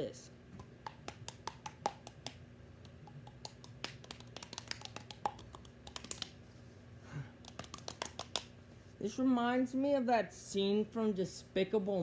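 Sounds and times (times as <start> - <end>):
hand tapping mouth pops: 0.6 - 6.4, 7.4 - 8.5.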